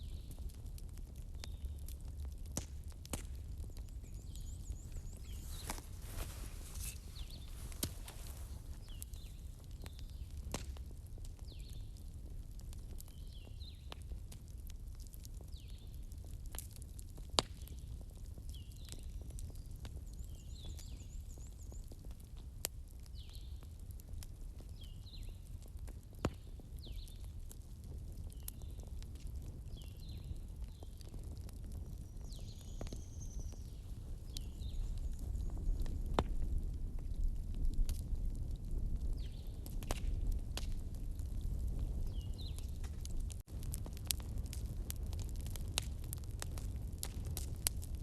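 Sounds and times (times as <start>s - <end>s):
fireplace crackling: 0.2s - 13.2s, 33.4s - 48.0s.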